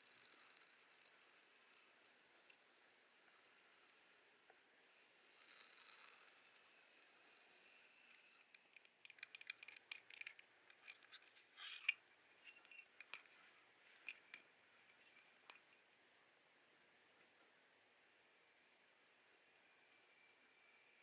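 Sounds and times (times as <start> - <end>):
small hard objects clicking: 8.2 - 13.3.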